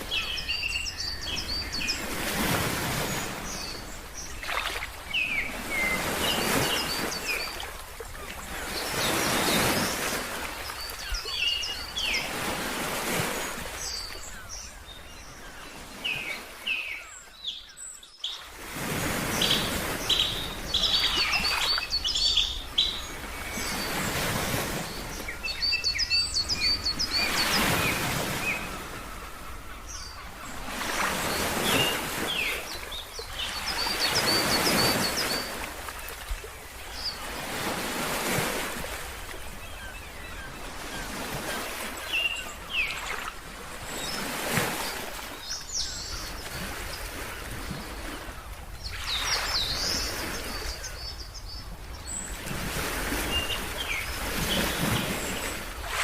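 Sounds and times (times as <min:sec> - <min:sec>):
small birds chirping: 0:19.2 - 0:36.2.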